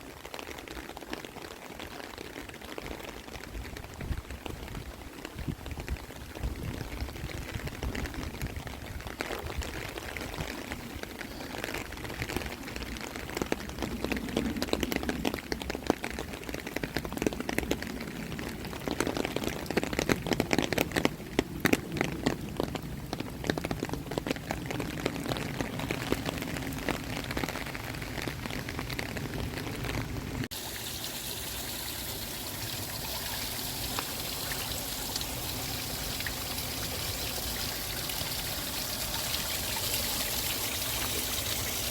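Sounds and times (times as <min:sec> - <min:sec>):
raindrops striking a surface: 0:00.0 - 0:41.9
steady hiss of water: 0:30.4 - 0:41.9.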